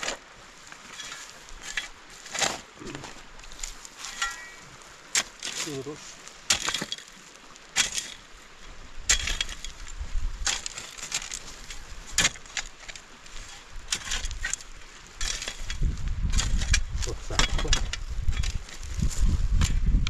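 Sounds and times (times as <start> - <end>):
sharp crunching impacts: 0.9 - 8.3.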